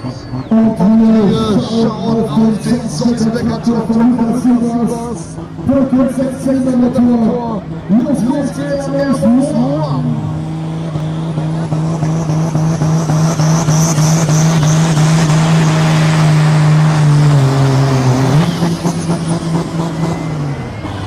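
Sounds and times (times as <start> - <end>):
pulling tractor diesel engine: 0.0 - 21.0.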